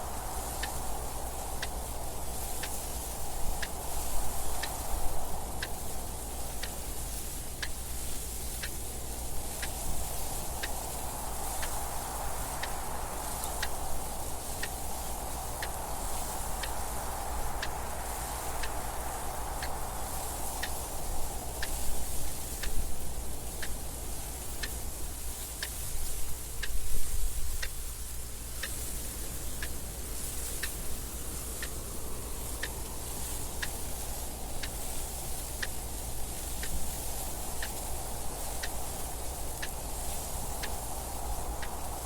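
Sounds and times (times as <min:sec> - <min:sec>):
wind noise: 0:00.0 - 0:42.0
clock ticking: 0:30.5 - 0:30.8, 0:31.5 - 0:41.9.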